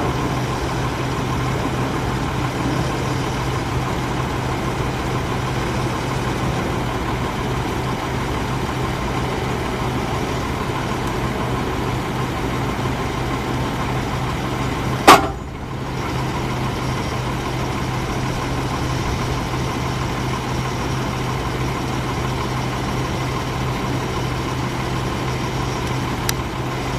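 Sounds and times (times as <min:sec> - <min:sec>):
diesel truck engine idling: 0:00.0 - 0:26.9
sharp knock: 0:15.1 - 0:15.5.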